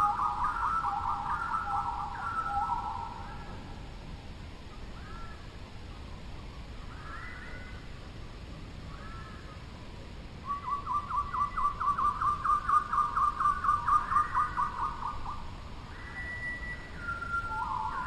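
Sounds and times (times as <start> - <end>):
bird calling repeated notes: 0.0 - 3.4, 15.9 - 18.0.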